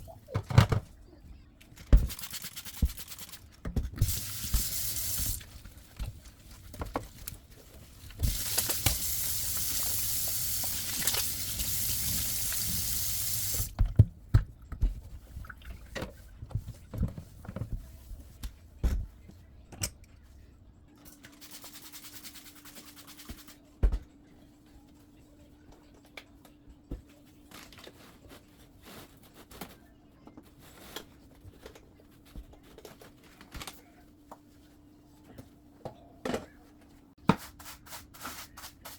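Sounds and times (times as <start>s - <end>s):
sink tap running: 8.2s - 13.7s.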